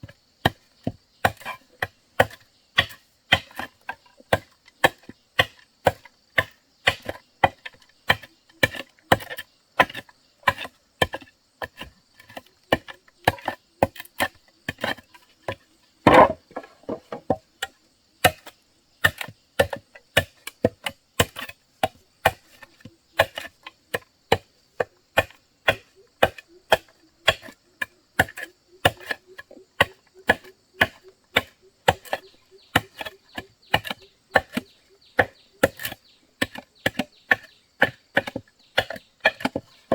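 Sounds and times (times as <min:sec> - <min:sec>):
hand tool striking wood: 0:15.5 - 0:17.4, 0:23.2 - 0:27.5, 0:29.8 - 0:39.9.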